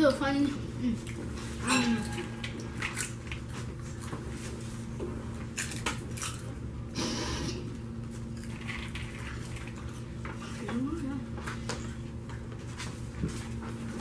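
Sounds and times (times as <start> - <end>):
low steady hum: 0.0 - 14.0
people chewing crunchy popcorn: 0.9 - 10.8.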